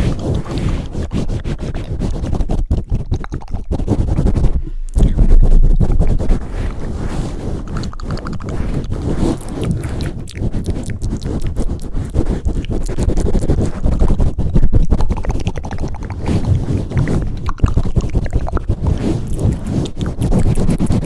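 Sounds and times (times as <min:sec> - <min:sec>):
hands rubbing over microphone: 0:00.0 - 0:21.0.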